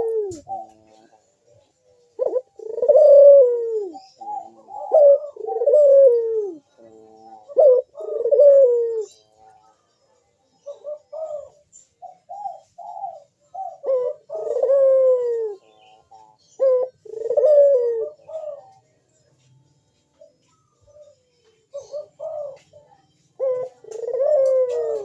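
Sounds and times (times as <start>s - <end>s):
dove cooing: 0.0s - 18.9s, 20.1s - 25.0s.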